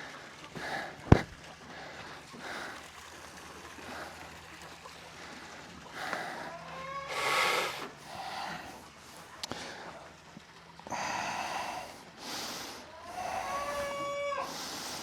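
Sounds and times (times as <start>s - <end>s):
goats and sheep bleating: 6.4s - 7.2s, 13.0s - 14.6s.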